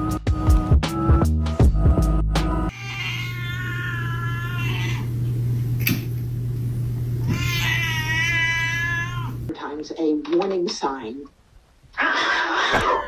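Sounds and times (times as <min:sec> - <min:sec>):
cat meowing: 0:02.7 - 0:05.2, 0:07.2 - 0:09.5
steady low hum: 0:02.7 - 0:09.5.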